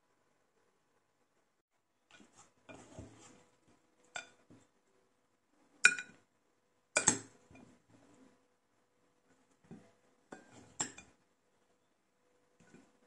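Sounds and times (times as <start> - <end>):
cutlery scraping: 2.1 - 3.4, 10.3 - 11.1.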